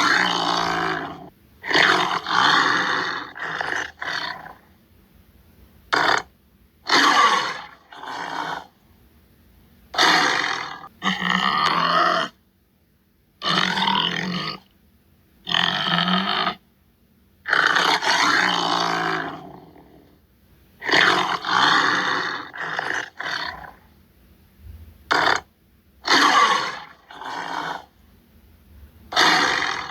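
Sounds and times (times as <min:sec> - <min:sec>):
tiger grunting roars: 0:00.0 - 0:04.6, 0:06.9 - 0:08.8, 0:10.0 - 0:12.4, 0:13.4 - 0:14.7, 0:15.4 - 0:16.6, 0:17.5 - 0:20.2, 0:20.8 - 0:23.8, 0:25.1 - 0:28.0, 0:29.1 - 0:29.9.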